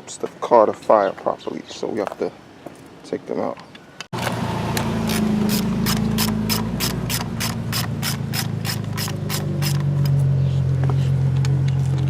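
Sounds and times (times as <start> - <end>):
socket ratchet clicking: 5.1 - 10.2.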